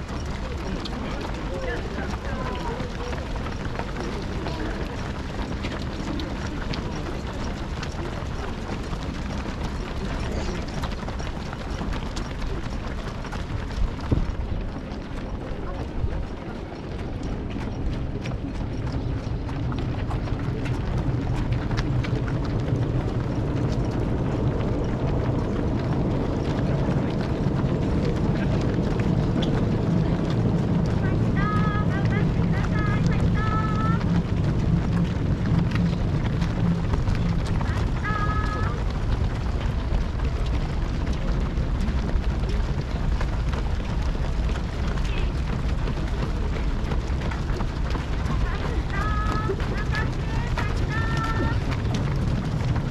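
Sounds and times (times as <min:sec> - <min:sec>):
low rumble: 0:00.0 - 0:52.9
runners' footfalls on road: 0:00.0 - 0:52.9.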